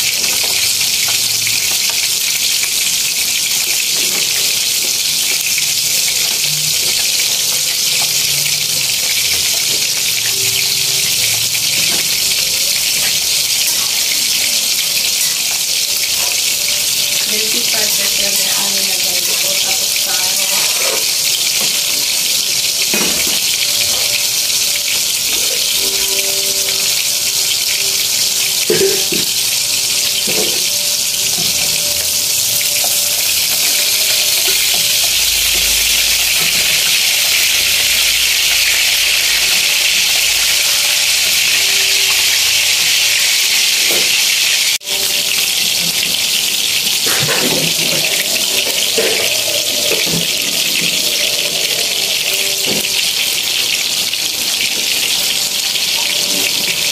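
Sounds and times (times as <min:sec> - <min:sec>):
noodles sizzling in wok: 0:00.0 - 0:56.9
metal spatula scraping wok: 0:46.3 - 0:54.0.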